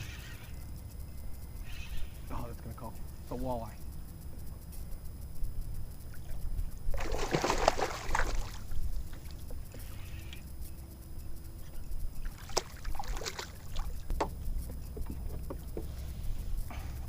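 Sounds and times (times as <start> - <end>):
water splashing and dripping: 6.9 - 9.4, 12.2 - 14.4.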